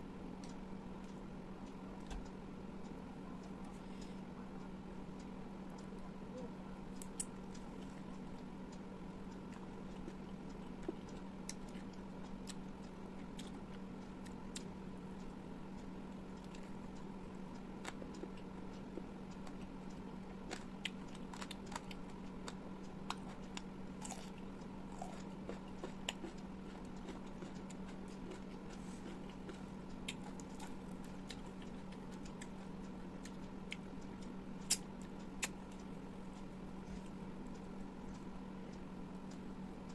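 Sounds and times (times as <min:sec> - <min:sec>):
steady low hum: 0:00.0 - 0:39.9
chewing with crunches: 0:07.0 - 0:15.3, 0:16.1 - 0:38.3.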